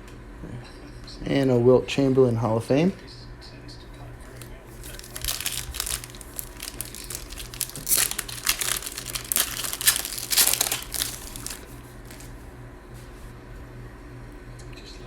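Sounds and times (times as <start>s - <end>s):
card pack wrapper crinkling: 4.3s - 12.3s.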